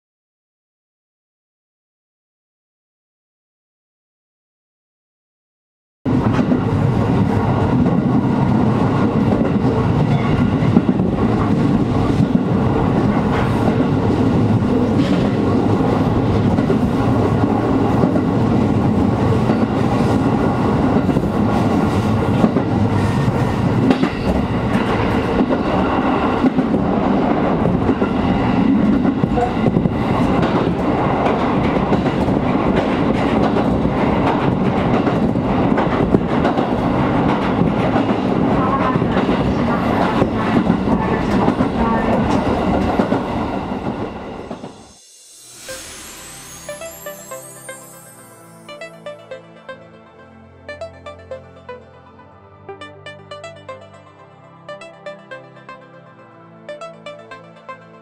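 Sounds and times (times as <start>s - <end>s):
train wheels rumbling on rails: 6.1s - 45.1s.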